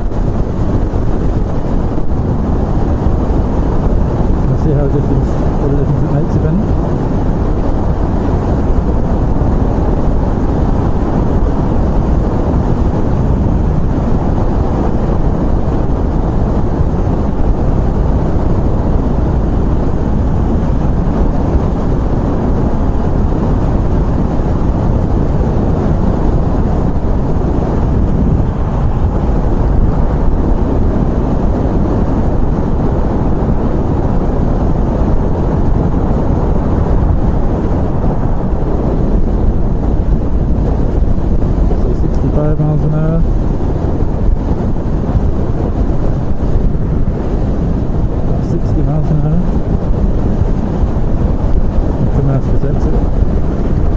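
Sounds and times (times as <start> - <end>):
wind rush from riding: 0.0 - 53.9.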